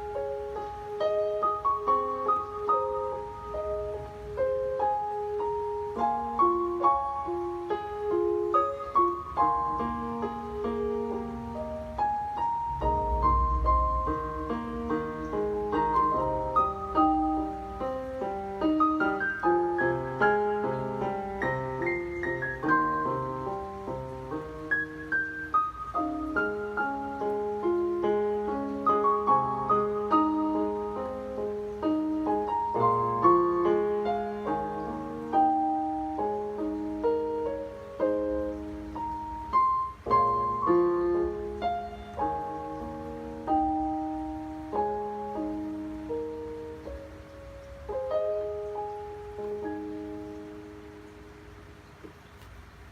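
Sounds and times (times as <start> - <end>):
piano music: 0.0 - 52.9.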